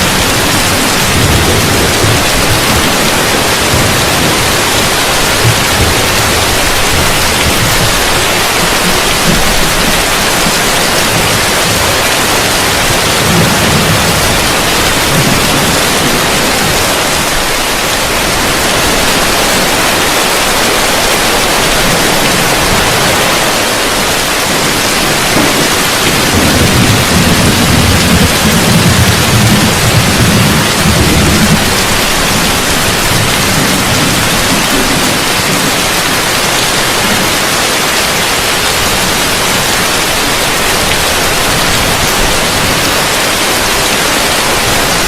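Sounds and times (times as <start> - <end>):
low rumble of thunder: 0.0 - 20.3, 21.3 - 36.4
heavy rain on a roof: 0.0 - 45.0.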